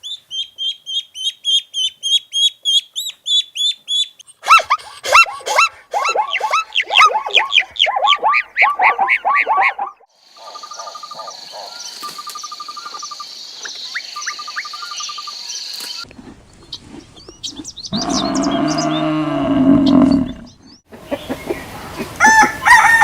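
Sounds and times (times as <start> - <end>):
rapid high chirping calls: 0.0 - 16.0.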